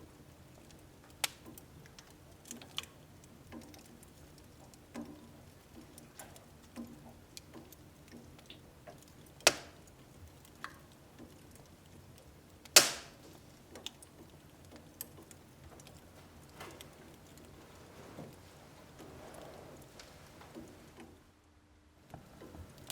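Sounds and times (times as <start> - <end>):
firewood crackling in stove: 0.0 - 22.9
loud sharp pops: 9.5 - 9.8, 12.8 - 13.3.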